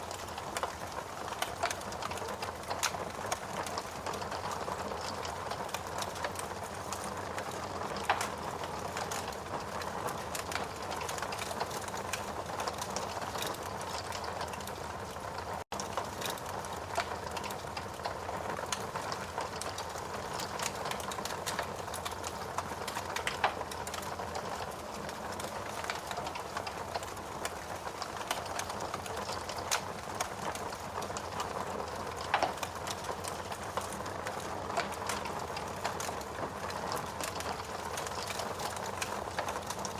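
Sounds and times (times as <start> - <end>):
steady rain: 0.0 - 39.9
wood fire crackling: 0.0 - 39.9.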